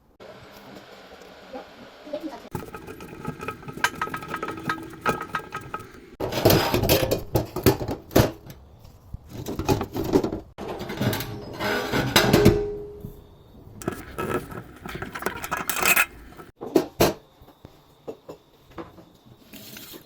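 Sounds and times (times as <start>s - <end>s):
metal tools clinking and knocking: 2.5s - 6.2s, 13.8s - 16.6s.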